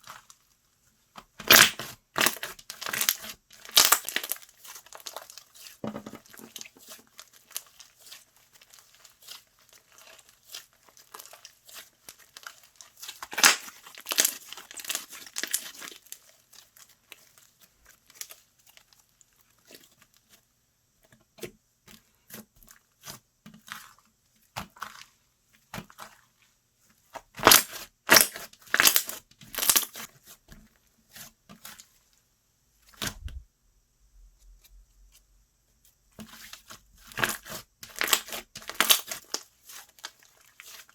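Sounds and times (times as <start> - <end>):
slime crackling and popping: 1.4 - 5.8, 6.6 - 17.3, 27.2 - 30.0, 37.1 - 40.9.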